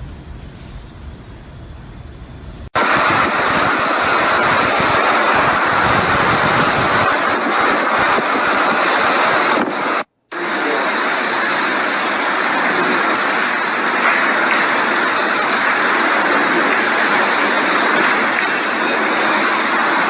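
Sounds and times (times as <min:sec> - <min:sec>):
hurricane wind rushing: 0:02.8 - 0:20.0.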